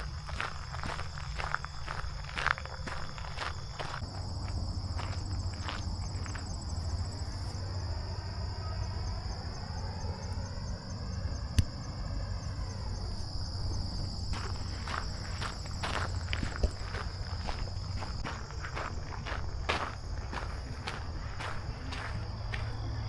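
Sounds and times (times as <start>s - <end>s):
footsteps: 0.0s - 6.5s, 14.0s - 22.8s
insects trilling: 0.0s - 23.0s.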